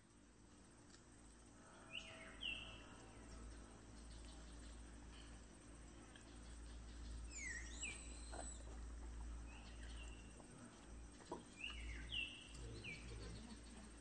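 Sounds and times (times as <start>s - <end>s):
low steady rumble: 0.0s - 14.0s
birds whistling descending notes: 7.3s - 8.7s.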